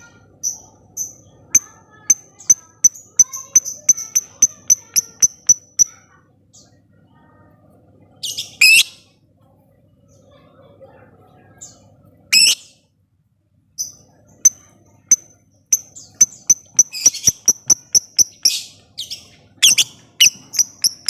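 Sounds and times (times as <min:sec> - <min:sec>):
ticking bird chirps: 0:00.0 - 0:06.0, 0:13.8 - 0:21.0.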